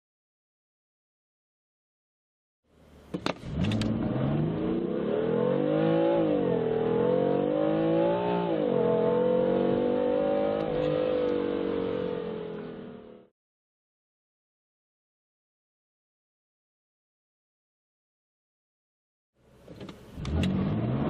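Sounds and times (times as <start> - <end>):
car engine accelerating: 2.9 - 13.3, 19.6 - 21.0.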